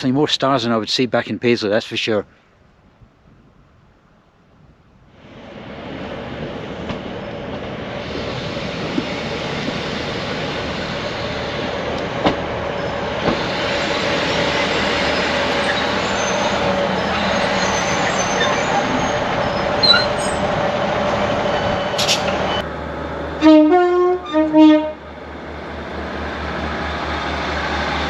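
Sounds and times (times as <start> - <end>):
diesel train running in: 4.0 - 28.0
steady wheel squeal: 12.8 - 22.6.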